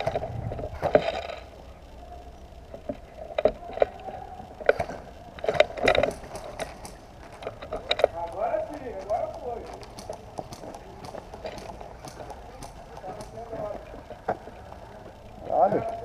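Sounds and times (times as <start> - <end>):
sharp clicks and knocks: 2.7 - 8.4.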